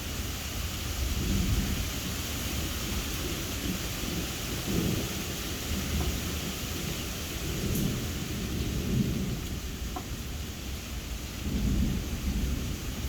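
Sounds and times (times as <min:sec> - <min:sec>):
rain falling: 0:00.0 - 0:13.0
thunder rumbling: 0:02.6 - 0:10.3, 0:10.9 - 0:13.0.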